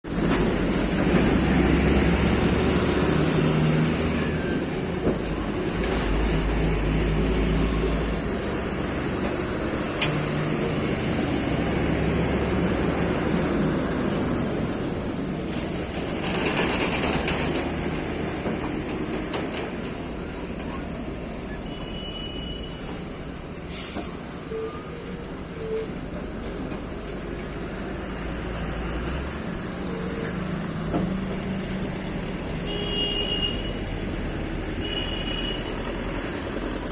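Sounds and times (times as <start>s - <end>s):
diesel lorry engine rumbling: 0.1s - 36.9s.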